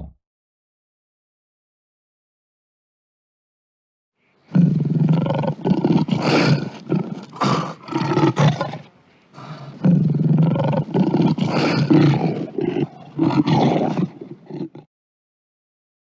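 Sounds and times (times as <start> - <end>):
lion roaring: 4.5 - 14.9.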